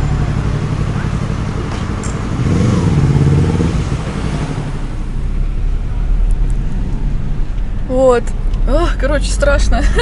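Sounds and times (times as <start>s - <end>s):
engine revving: 0.0s - 5.3s
vehicle road and engine drone: 0.0s - 10.0s.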